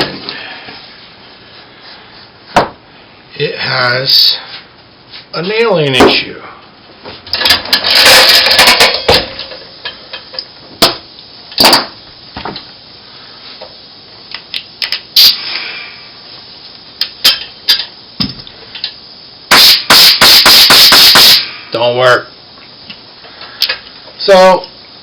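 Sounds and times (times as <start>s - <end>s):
nail gun air rushing: 19.5s - 21.6s.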